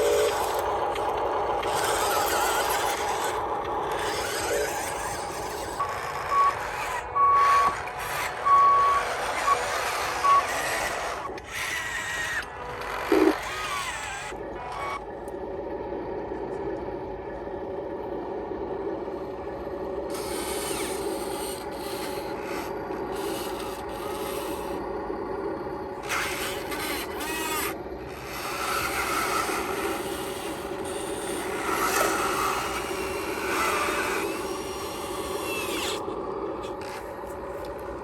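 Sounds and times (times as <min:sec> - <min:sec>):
gritty scraping and rubbing: 0:00.0 - 0:15.0
small electric motors whirring: 0:00.0 - 0:15.6, 0:18.6 - 0:38.0.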